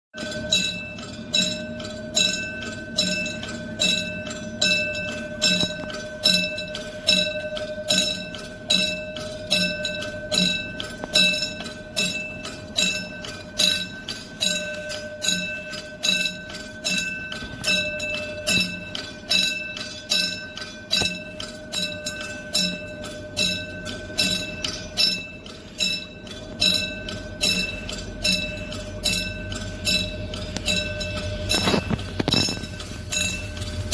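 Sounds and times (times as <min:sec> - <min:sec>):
level crossing bell ringing: 0:00.2 - 0:33.9
steady tone: 0:00.2 - 0:33.9.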